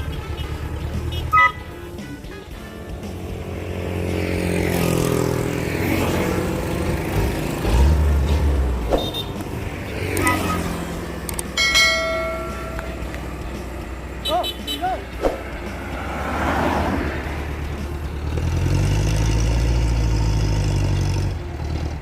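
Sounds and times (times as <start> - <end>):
horn-like tone: 0.0 - 2.9, 10.1 - 10.9, 11.6 - 13.1
truck engine revving and labouring: 0.0 - 22.0.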